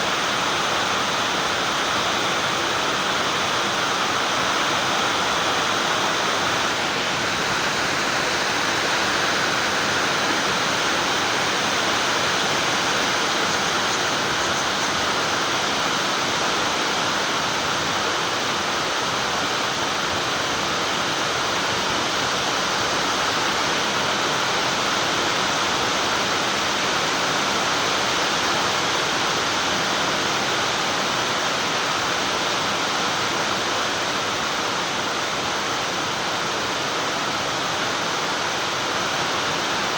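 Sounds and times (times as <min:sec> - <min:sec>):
steady hiss: 0:00.0 - 0:39.9.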